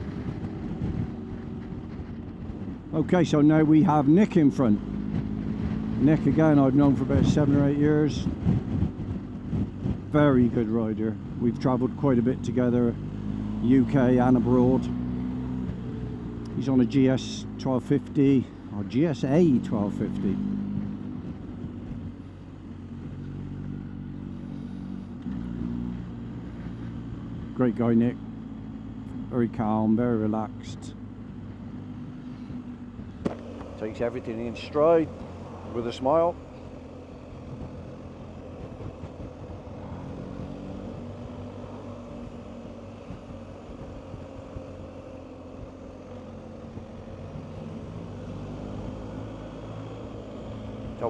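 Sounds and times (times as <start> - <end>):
motorcycle engine running: 0.0 - 51.0
wind rushing over microphone: 4.8 - 10.6.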